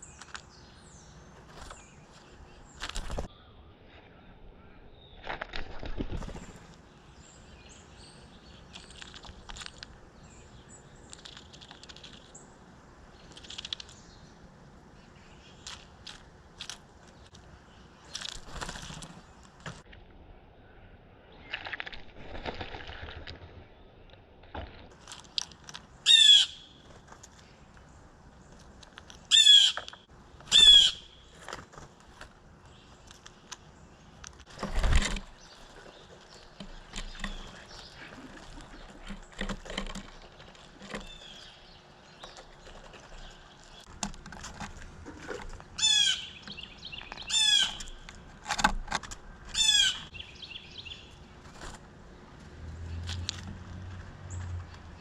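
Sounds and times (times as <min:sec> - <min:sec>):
harsh rolling bird calls: 0:29.3 - 0:31.4, 0:45.3 - 0:48.0, 0:49.4 - 0:51.2.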